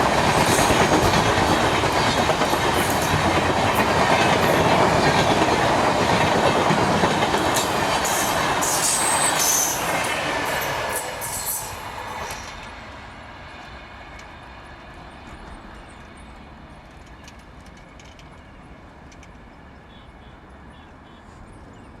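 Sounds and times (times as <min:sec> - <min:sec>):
distant train rumble: 0:00.0 - 0:19.9.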